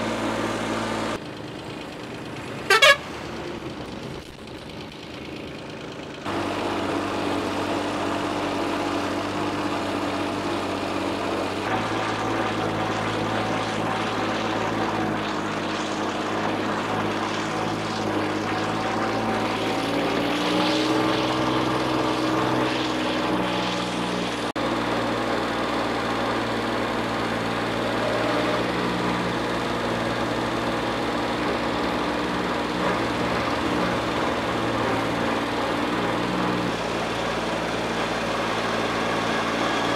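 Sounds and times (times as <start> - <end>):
diesel machinery engines running: 0.0 - 39.9.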